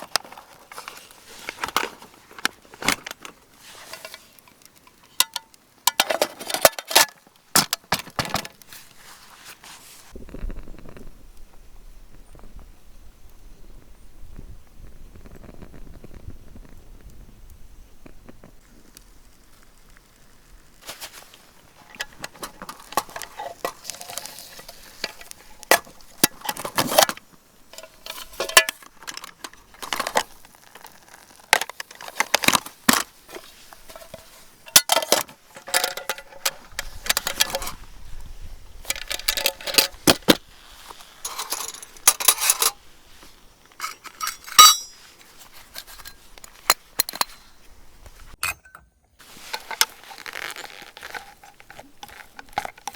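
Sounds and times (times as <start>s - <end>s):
metal clinking on metal: 41.2s - 42.8s, 43.8s - 45.1s, 48.4s - 49.0s.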